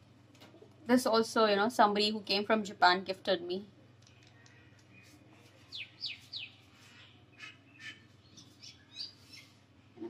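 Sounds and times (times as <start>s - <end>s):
small bird chirping: 4.1s - 9.6s.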